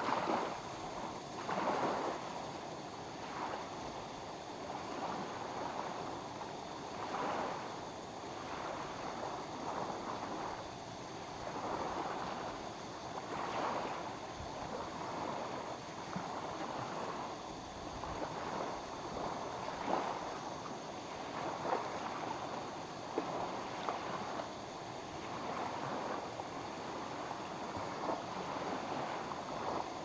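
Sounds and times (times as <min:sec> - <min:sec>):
waves lapping at shore: 0:00.0 - 0:30.0.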